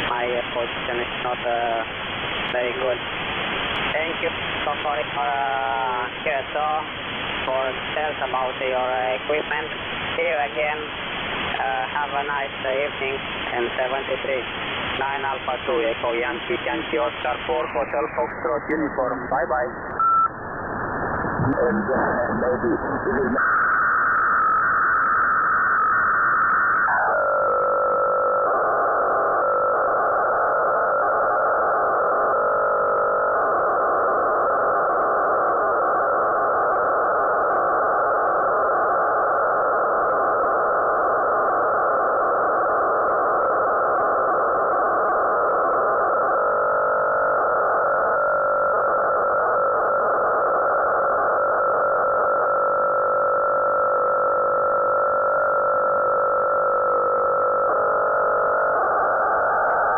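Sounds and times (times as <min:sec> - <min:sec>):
radio hiss: 0:00.0 - 0:20.1, 0:21.3 - 0:23.7.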